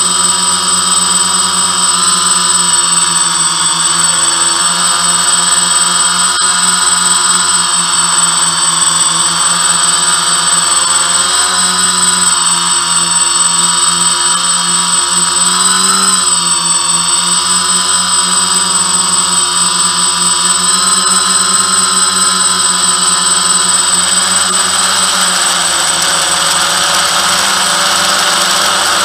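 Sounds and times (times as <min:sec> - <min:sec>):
quadcopter propellers buzzing: 0:00.0 - 0:29.0
thin high whine: 0:00.0 - 0:29.0.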